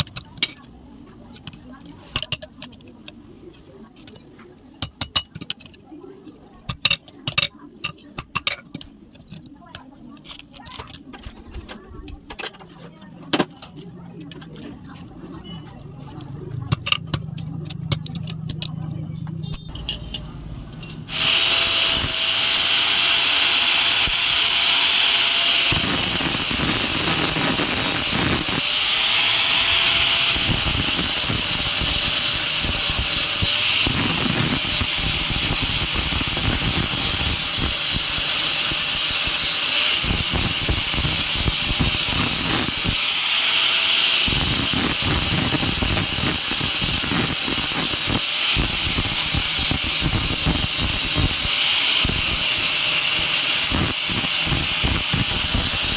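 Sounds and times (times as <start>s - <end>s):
angle grinder grinding metal: 20.8s - 55.9s.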